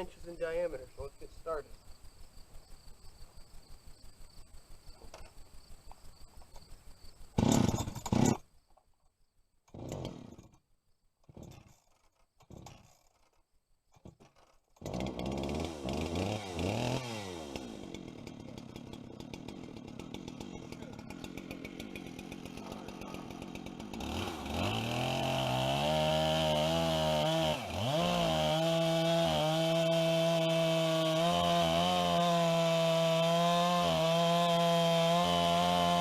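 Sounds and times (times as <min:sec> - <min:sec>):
insect chirping: 0:00.0 - 0:09.7, 0:10.5 - 0:11.2
chainsaw engine starting and revving: 0:07.4 - 0:08.4, 0:09.7 - 0:10.6, 0:11.2 - 0:13.4, 0:14.0 - 0:36.0.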